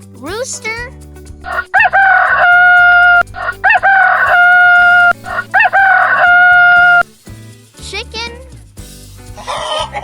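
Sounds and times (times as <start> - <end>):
rooster crowing: 1.5 - 7.1, 9.4 - 10.0.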